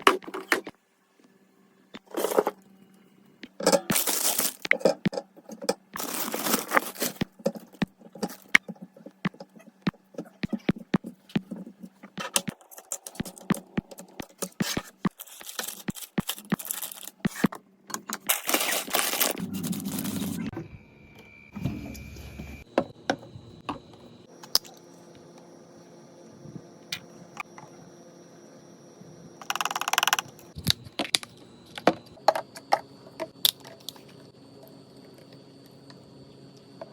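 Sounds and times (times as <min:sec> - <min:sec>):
crinkling and rustling packaging: 0:03.9 - 0:05.0, 0:06.0 - 0:09.1, 0:11.4 - 0:17.5, 0:18.2 - 0:20.5
brief steady tone: 0:20.3 - 0:24.2.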